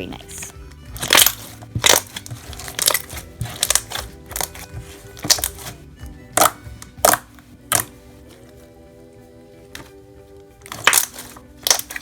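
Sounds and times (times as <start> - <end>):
background music: 0.0 - 12.0
slime being squeezed: 1.0 - 4.6, 10.7 - 12.0
slime air bubbles popping: 10.7 - 11.9.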